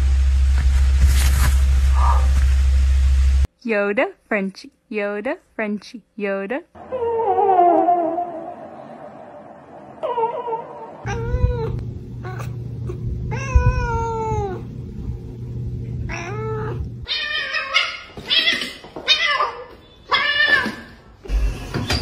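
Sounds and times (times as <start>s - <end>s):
cat meowing: 10.5s - 12.6s, 13.3s - 14.7s, 16.1s - 20.9s.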